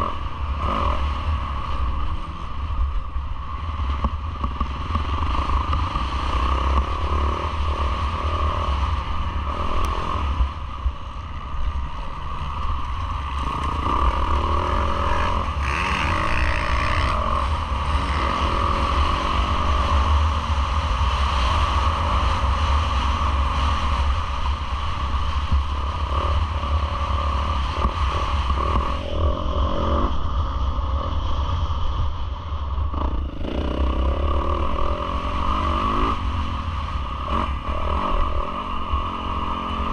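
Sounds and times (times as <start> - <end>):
motocross engine revving: 0.0 - 2.5, 13.3 - 20.4, 33.0 - 39.9
wind rumble on microphone: 0.0 - 39.9.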